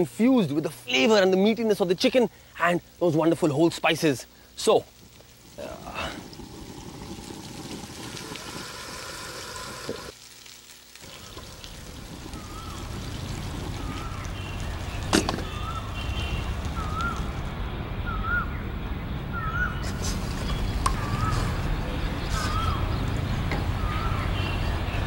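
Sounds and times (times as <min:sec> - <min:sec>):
stock pouring into a pan: 0:05.5 - 0:16.4
bird warbling call: 0:11.1 - 0:17.4, 0:18.0 - 0:18.6, 0:19.3 - 0:25.0.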